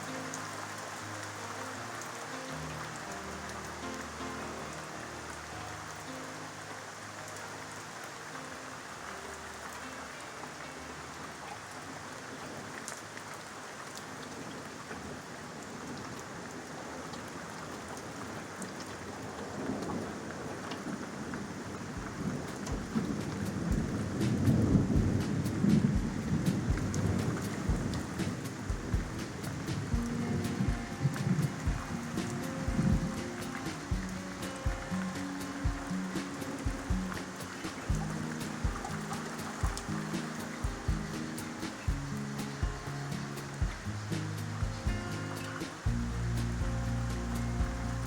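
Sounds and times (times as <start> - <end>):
steady rain falling: 0.0 - 48.0
thunder rumbling: 19.0 - 48.0.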